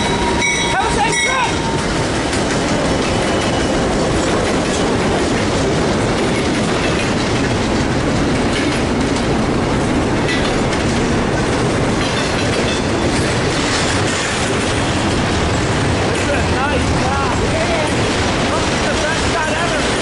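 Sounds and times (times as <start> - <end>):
freight train passing: 0.0 - 20.0
steel wheels clattering on rails: 0.0 - 20.0.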